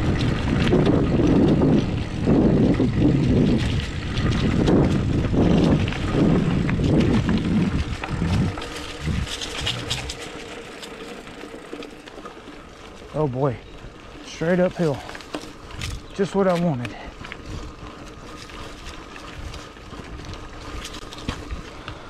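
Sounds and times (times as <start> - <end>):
wind on microphone: 0.0 - 10.4
bike tyres rumbling over dirt: 0.0 - 22.0.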